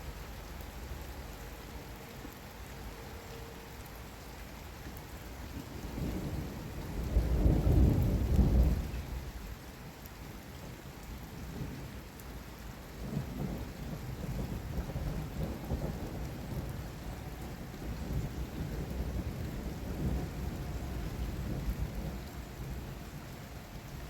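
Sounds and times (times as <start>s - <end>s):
heavy rain: 0.0s - 24.0s
rolling thunder rumble: 5.6s - 9.4s, 13.0s - 24.0s.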